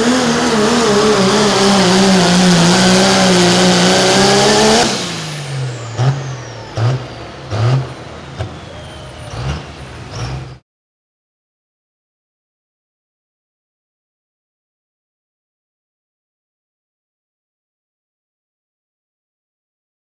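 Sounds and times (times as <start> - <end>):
diesel engine revving: 0.0 - 10.6.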